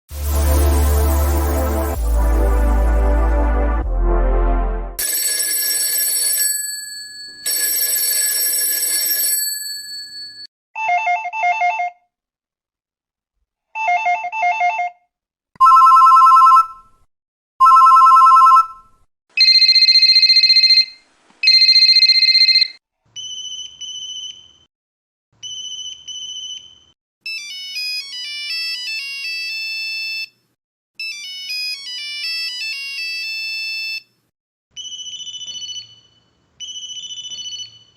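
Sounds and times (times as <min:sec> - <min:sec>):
telephone ringtones: 0:05.0 - 0:12.0, 0:15.6 - 0:16.8, 0:17.6 - 0:22.8.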